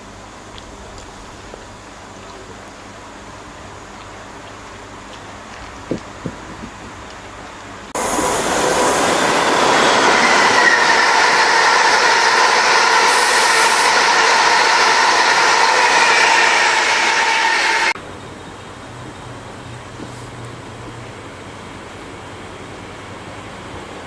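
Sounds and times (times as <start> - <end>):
train rushing past: 7.9 - 18.0
high-pitched whining tones: 8.0 - 18.0.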